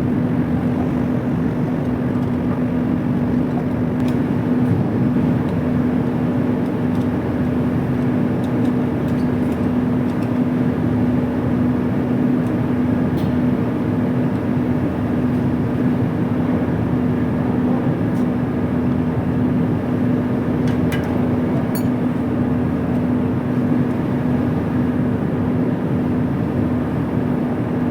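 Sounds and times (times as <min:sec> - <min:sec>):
industrial machinery humming: 0:15.8 - 0:27.8.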